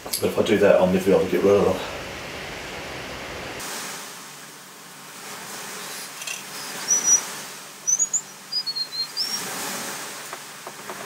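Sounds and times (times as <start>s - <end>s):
faint steady hiss: 0.0s - 11.0s
small bird chirping: 6.2s - 9.5s.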